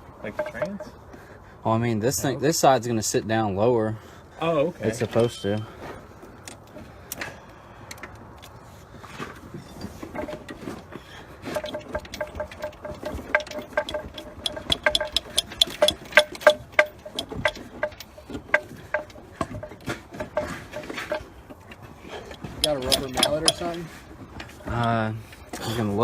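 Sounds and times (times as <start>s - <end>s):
metal parts clinking: 11.4s - 25.7s.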